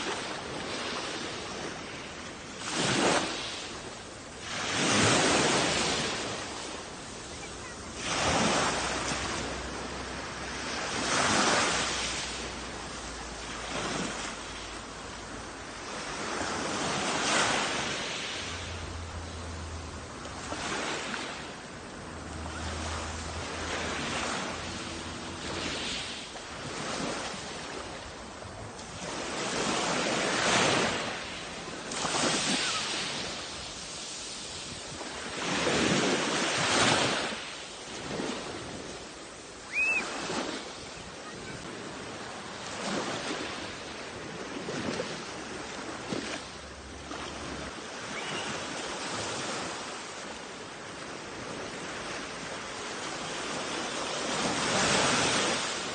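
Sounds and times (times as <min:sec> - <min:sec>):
sea waves breaking on shore: 0:00.0 - 0:55.9
wind: 0:00.0 - 0:55.9.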